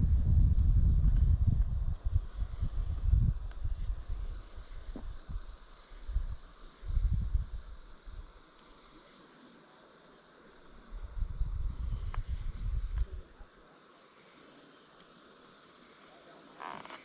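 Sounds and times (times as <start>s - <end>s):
low buffeting rumbles: 0.0s - 8.3s
crickets and insects chirping: 0.0s - 17.0s.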